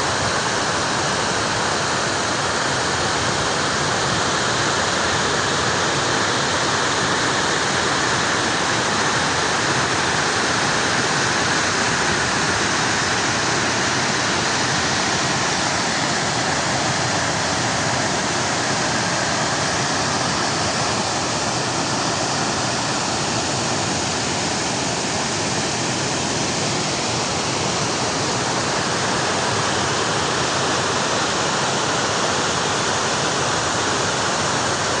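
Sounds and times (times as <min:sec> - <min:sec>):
flowing water: 0:00.0 - 0:35.0.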